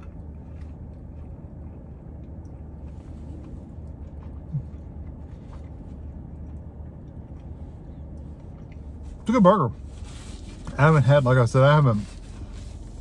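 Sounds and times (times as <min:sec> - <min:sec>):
person chewing: 0:00.0 - 0:09.2
low hum in car cabin: 0:00.0 - 0:13.0.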